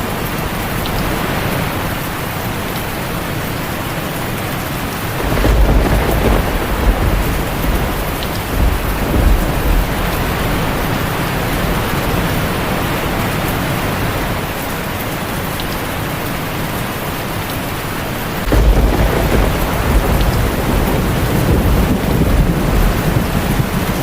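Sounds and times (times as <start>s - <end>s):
heavy rain on a tin roof: 0.0s - 24.0s
low thunder rumble: 5.2s - 13.3s, 18.4s - 24.0s.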